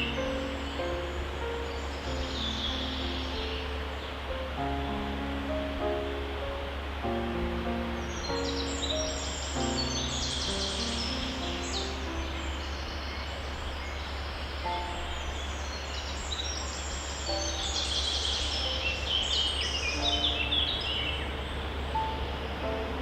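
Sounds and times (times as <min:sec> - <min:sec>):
soft held musical notes: 0:00.0 - 0:13.6
songbirds chirping: 0:00.0 - 0:23.0
steady hiss: 0:00.0 - 0:23.0.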